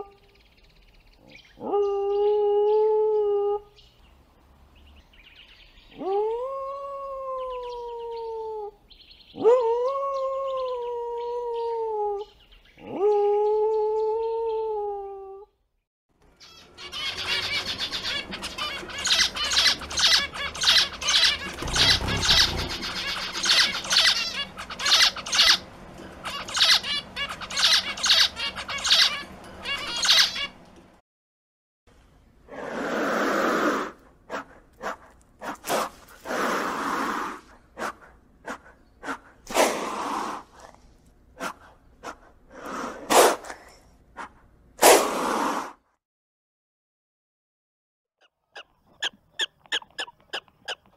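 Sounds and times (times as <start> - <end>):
finches chirping: 16.4 - 30.6.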